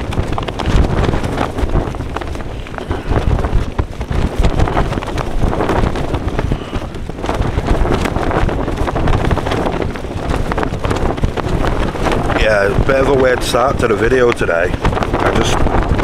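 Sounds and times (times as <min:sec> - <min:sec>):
tent fabric slapping: 0:00.0 - 0:13.6
wind rumble on microphone: 0:00.0 - 0:16.0.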